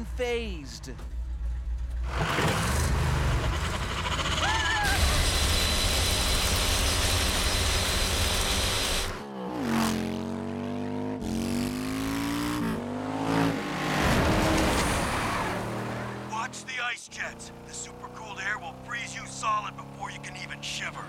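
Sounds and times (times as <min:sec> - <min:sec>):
cartoon engines revving: 0:02.0 - 0:10.1.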